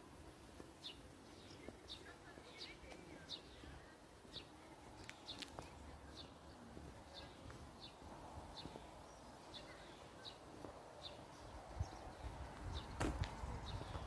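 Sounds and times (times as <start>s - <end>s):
outdoor ambience: 0.0s - 14.0s.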